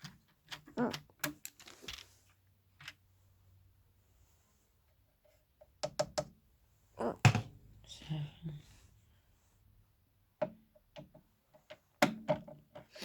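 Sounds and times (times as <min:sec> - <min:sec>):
knock on speaker cabinet: 0:07.2 - 0:07.6.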